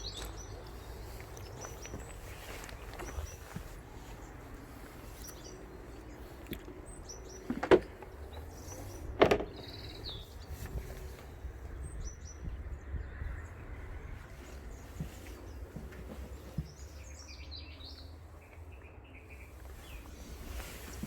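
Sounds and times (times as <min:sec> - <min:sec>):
bird chirps: 0:08.2 - 0:13.5.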